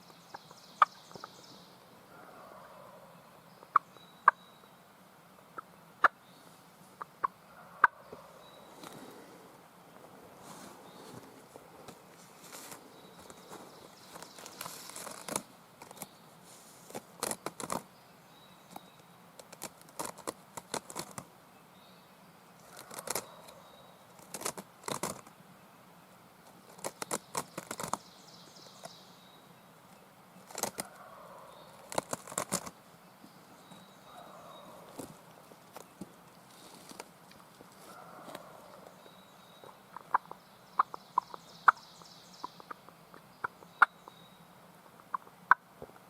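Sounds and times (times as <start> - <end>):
footsteps crunching dry leaves: 10.3 - 15.4.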